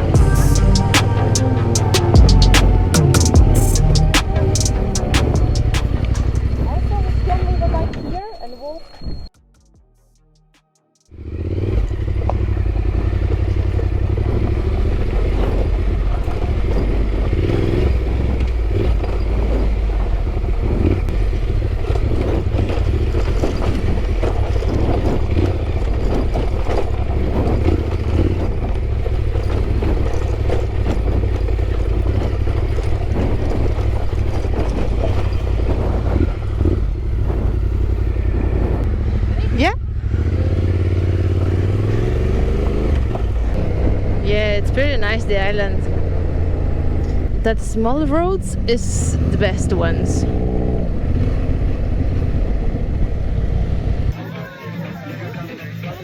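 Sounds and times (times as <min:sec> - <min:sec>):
motorcycle engine running: 0:00.0 - 0:08.0, 0:11.1 - 0:54.2
knocks and rattles: 0:11.8 - 0:38.9.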